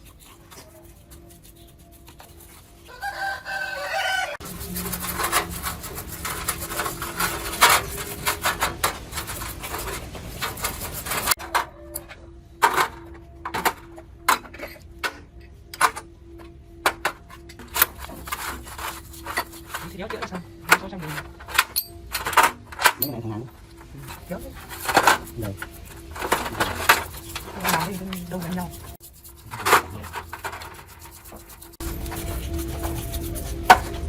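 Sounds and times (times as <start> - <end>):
hand scraping and rubbing: 0.0 - 11.4, 15.8 - 34.0
rooster crowing: 2.8 - 5.6, 11.4 - 12.6.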